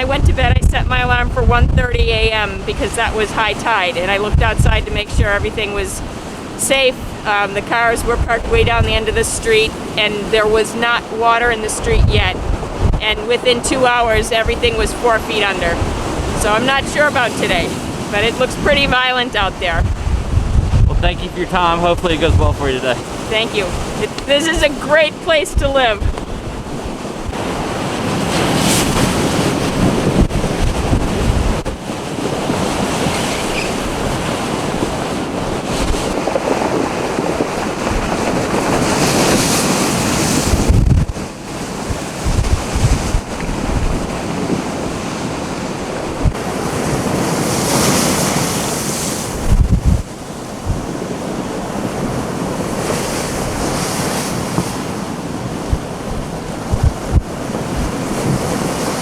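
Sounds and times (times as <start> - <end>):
heavy surf breaking: 0.0 - 59.0
wind rumbling on microphone: 0.0 - 59.0.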